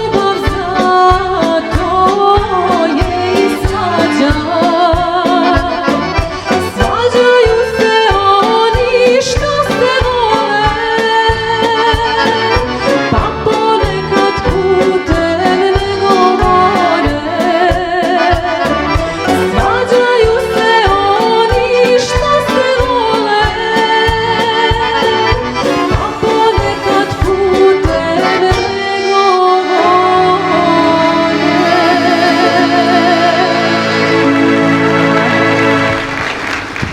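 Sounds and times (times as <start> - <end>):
rhythmic bass beat: 0.0 - 28.8
accordion folk melody: 0.0 - 36.9.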